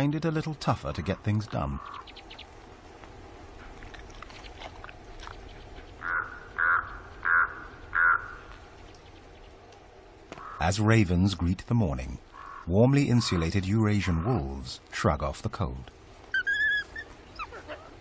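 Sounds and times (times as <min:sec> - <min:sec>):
raven croaking: 0:00.9 - 0:02.4, 0:03.7 - 0:08.7, 0:10.3 - 0:14.8.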